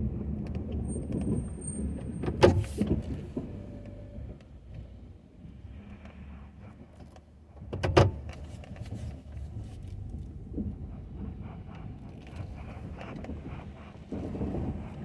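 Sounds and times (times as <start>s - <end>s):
truck engine rumbling: 8.0s - 15.0s.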